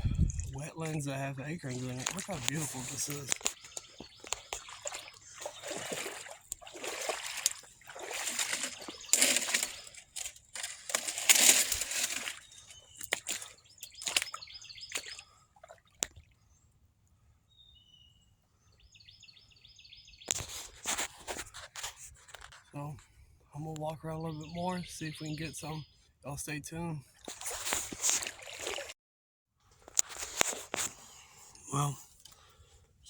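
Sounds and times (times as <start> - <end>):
boots sloshing through water: 0.0 - 16.3, 27.2 - 29.0.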